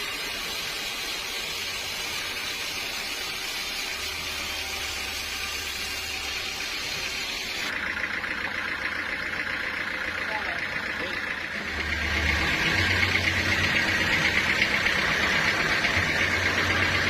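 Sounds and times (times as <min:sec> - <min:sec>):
sawmill machinery hissing rush: 0:00.0 - 0:17.0
low hum: 0:04.0 - 0:17.0.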